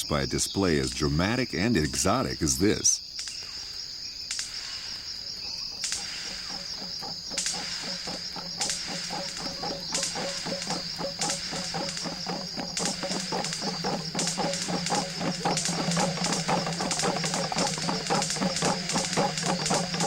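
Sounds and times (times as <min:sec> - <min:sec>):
high-pitched insect drone: 0:00.0 - 0:20.0
fast pulsing chorus: 0:05.8 - 0:20.0
sharp rasping pulses: 0:05.9 - 0:20.0.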